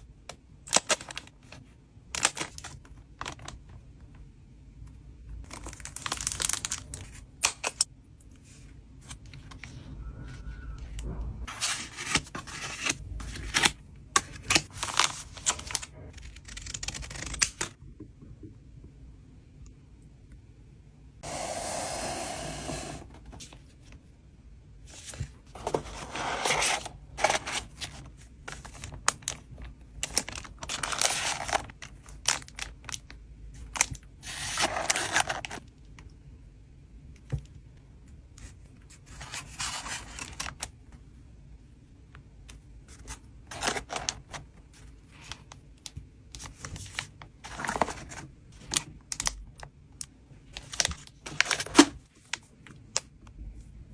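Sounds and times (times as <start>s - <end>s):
plastic wrapping rustling and tearing: 5.6s - 7.2s, 25.9s - 35.6s
wind noise rumble: 9.5s - 11.7s.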